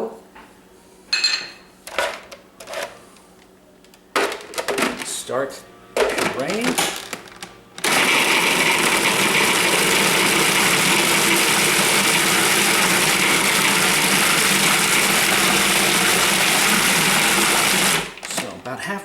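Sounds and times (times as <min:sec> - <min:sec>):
food processor running: 0:07.8 - 0:18.2.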